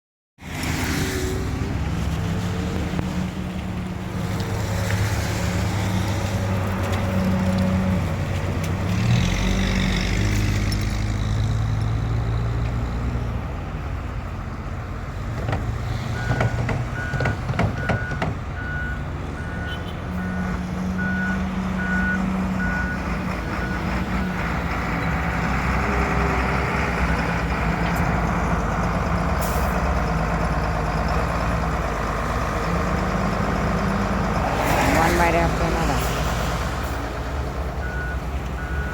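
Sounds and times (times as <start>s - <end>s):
diesel engines running: 0.4s - 38.9s
reversing alarm beeping: 37.8s - 38.9s.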